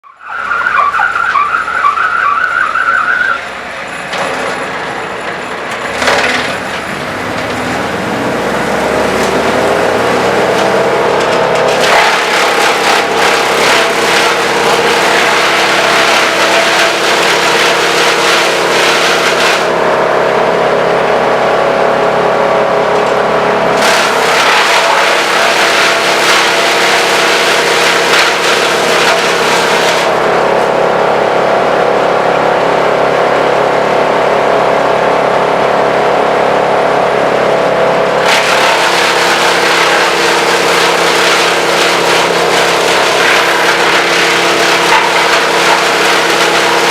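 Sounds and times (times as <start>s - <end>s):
high-pitched squeal: 0.0s - 20.5s
wood chipper engine: 0.1s - 46.9s.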